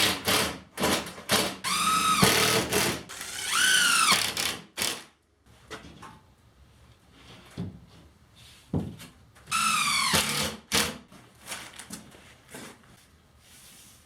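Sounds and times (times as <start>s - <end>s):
power drill whine: 1.7s - 4.4s, 9.5s - 10.5s.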